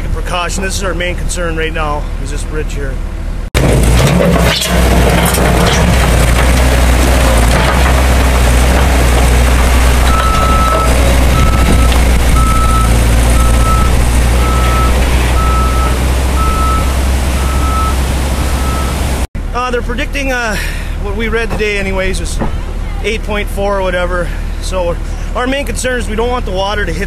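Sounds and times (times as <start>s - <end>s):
heavy equipment engine running: 3.0s - 27.0s
backup alarm beeping: 10.1s - 19.1s.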